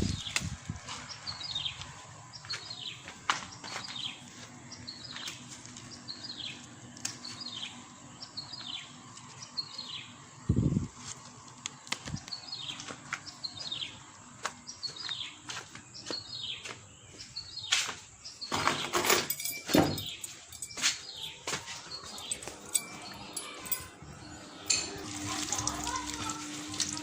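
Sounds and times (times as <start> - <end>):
scuffing noises: 0.7 - 6.7, 14.4 - 18.2, 20.0 - 22.6.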